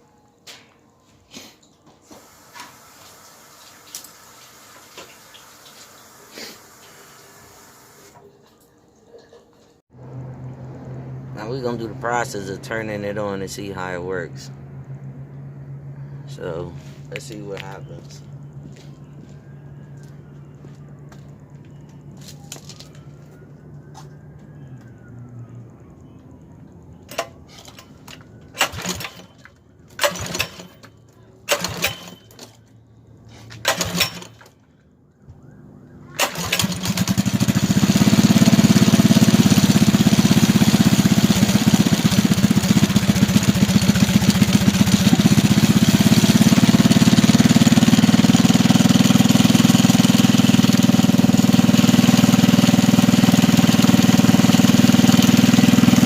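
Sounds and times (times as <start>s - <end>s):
engine running loud: 9.9s - 20.1s, 36.2s - 56.0s
engine pull-start: 27.1s - 32.6s, 33.4s - 34.7s, 36.1s - 56.0s.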